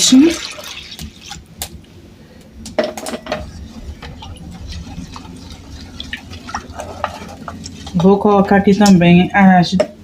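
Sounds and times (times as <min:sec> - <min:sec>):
milk pouring: 0:00.2 - 0:01.5, 0:03.4 - 0:08.1.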